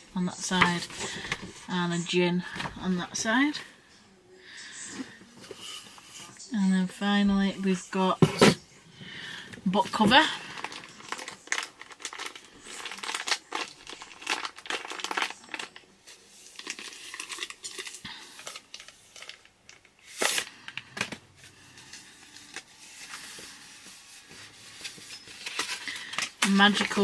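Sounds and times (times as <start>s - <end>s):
packaging crinkling: 9.2s - 27.0s
packaging ripping: 10.0s - 27.0s.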